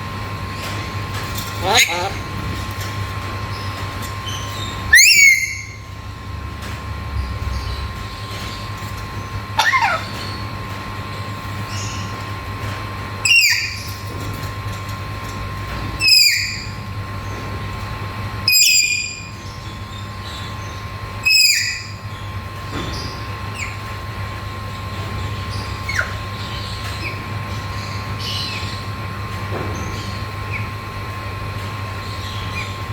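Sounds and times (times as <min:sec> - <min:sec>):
steady background hum: 0:00.0 - 0:32.9
parrot screeching calls: 0:01.6 - 0:02.3, 0:04.9 - 0:05.9, 0:09.6 - 0:10.2, 0:13.2 - 0:13.8, 0:16.0 - 0:16.7, 0:21.2 - 0:21.9.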